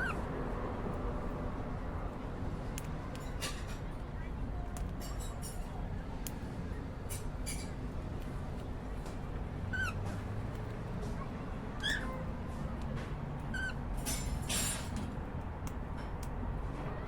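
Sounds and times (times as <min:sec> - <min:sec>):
cockatiel chirping: 0:11.8 - 0:12.2.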